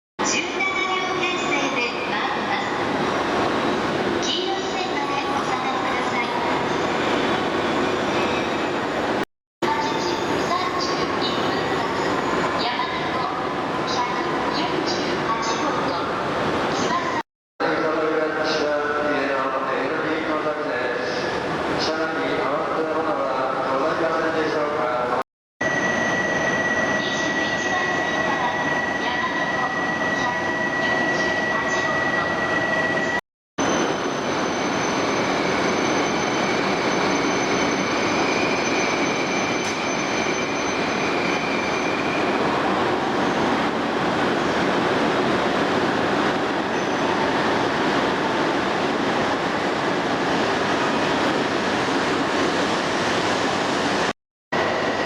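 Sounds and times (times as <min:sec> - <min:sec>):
train rushing rumble with electric whine: 0:33.6 - 0:55.0.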